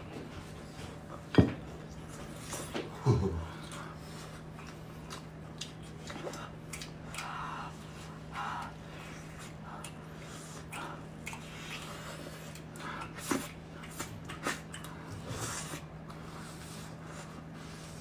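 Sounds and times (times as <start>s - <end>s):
steady low hum: 0.0s - 18.0s
chewing and crunching crispy food: 2.4s - 16.2s.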